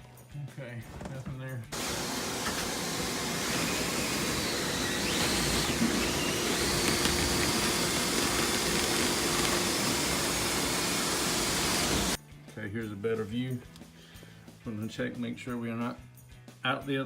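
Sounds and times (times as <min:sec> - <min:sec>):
brush rushing through vent duct: 0:01.8 - 0:12.2.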